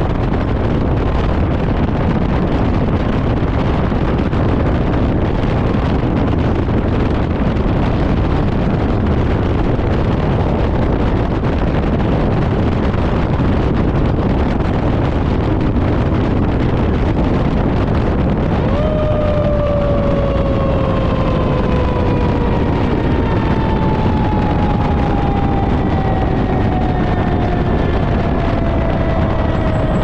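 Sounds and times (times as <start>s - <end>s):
fire engine rumble: 0.0s - 30.0s
siren sliding down in pitch: 18.4s - 30.0s.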